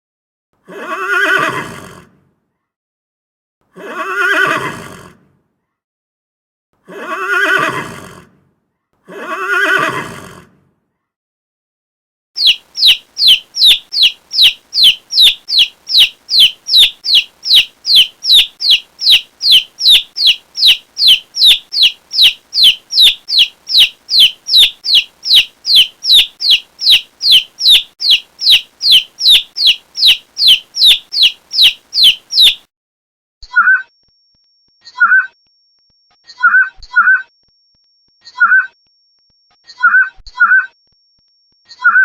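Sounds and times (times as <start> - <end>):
chick peeping: 12.4 - 32.7.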